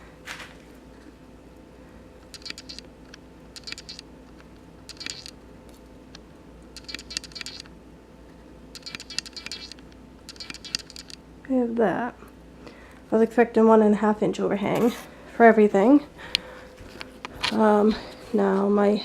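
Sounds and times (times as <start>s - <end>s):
faint room hum: 0.0s - 19.0s
rapid light clicking: 2.2s - 7.7s, 8.7s - 11.2s.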